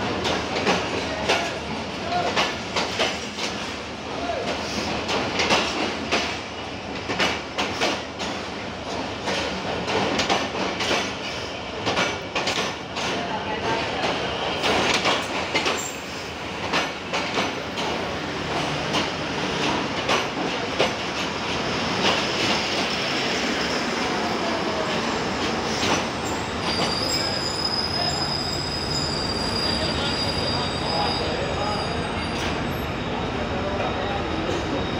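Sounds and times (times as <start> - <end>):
train coaches rumbling past: 0.0 - 34.9
wheels clacking over rail joints: 7.0 - 13.2
high wheel squeal: 26.2 - 34.9.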